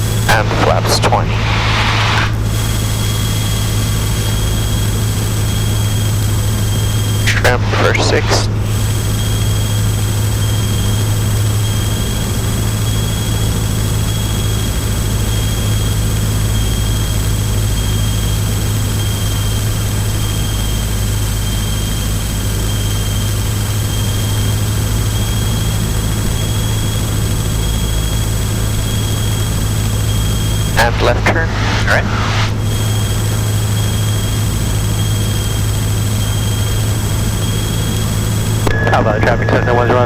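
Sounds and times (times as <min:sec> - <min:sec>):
propeller plane engine droning: 0:00.0 - 0:40.0.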